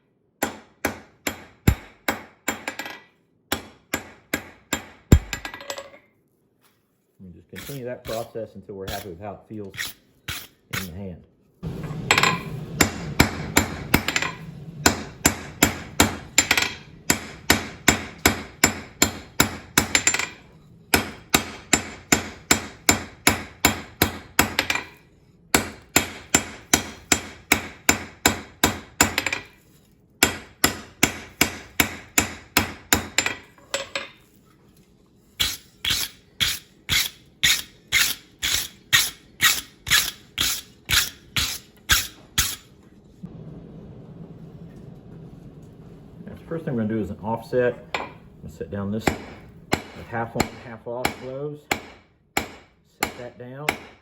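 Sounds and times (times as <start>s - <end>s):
hammer striking steel on anvil: 0.4s - 5.8s, 11.6s - 29.6s, 30.2s - 34.2s, 35.4s - 42.7s, 47.9s - 48.2s, 49.0s - 54.0s.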